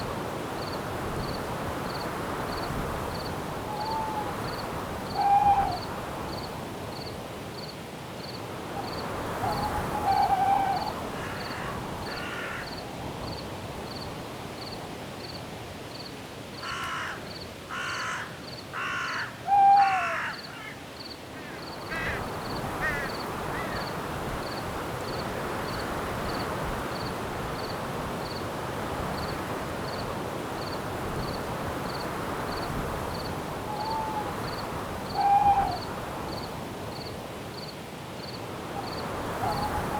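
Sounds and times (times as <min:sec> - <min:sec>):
wind in branches: 0:00.0 - 0:39.9
crickets chirping: 0:00.6 - 0:39.9
owl hoots: 0:03.7 - 0:04.4, 0:05.1 - 0:05.9, 0:09.4 - 0:11.0, 0:18.9 - 0:20.3, 0:33.7 - 0:34.4, 0:35.1 - 0:35.9, 0:39.4 - 0:39.9.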